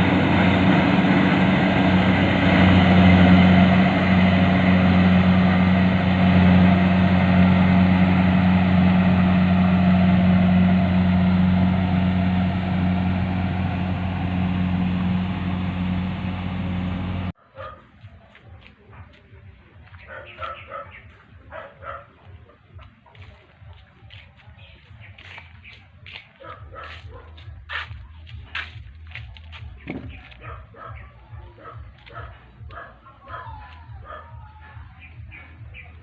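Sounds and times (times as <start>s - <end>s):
engine running steadily: 0.0s - 17.4s.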